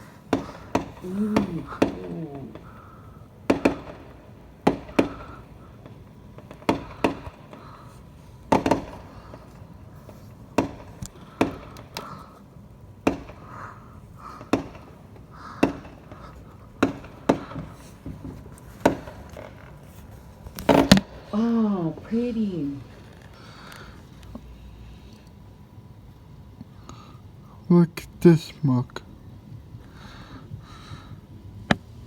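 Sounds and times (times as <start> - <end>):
fireworks bangs and pops: 0.0 - 24.4.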